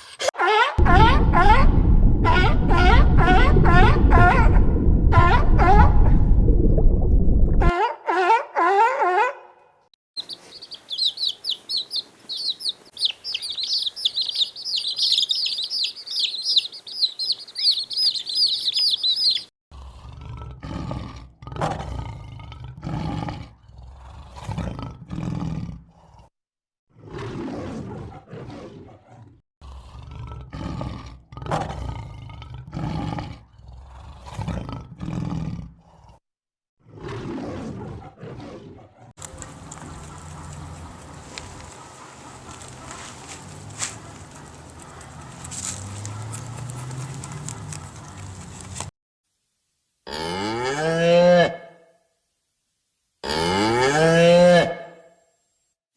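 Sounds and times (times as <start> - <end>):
bird chirping rapidly: 10.2 - 19.5.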